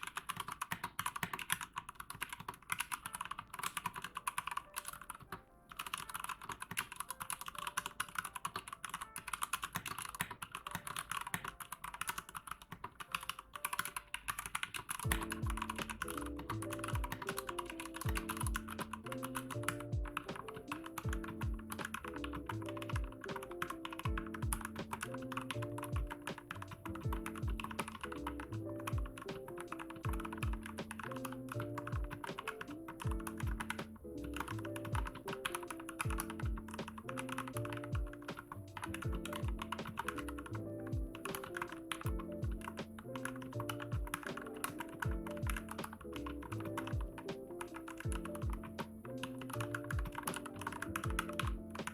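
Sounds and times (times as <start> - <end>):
typing on mechanical keyboard: 0.0 - 51.9
background music with beat: 15.0 - 51.9.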